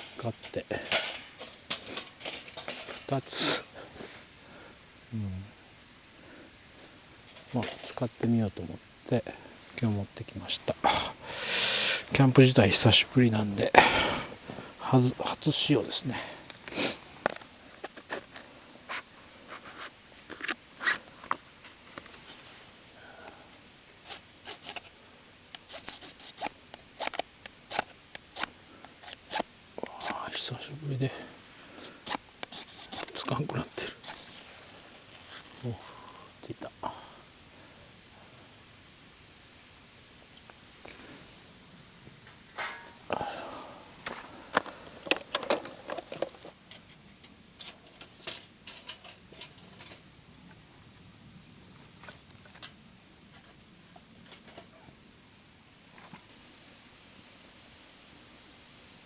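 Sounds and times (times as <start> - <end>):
fire striker scraping: 0.0 - 3.7, 10.5 - 22.7, 24.0 - 24.9, 25.5 - 35.9, 42.3 - 43.2, 44.0 - 50.1.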